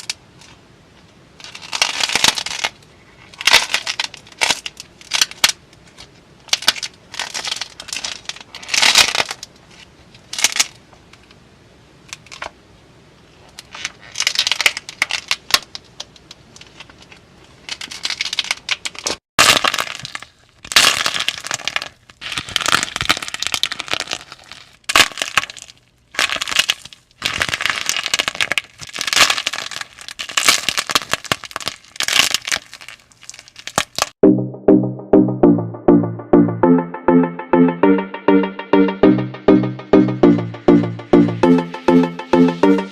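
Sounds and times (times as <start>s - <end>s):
slime crackling and popping: 17.7s - 34.2s.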